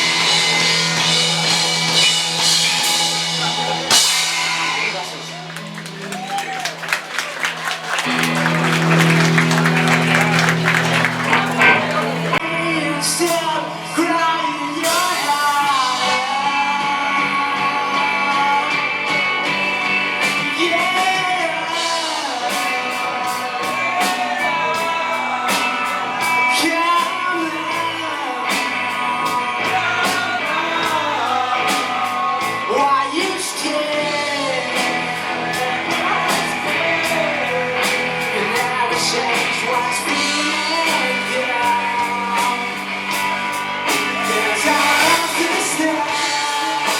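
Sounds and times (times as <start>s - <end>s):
steady drum beat: 0.0s - 12.4s
rock band playing: 0.0s - 46.9s
person singing: 8.0s - 46.9s.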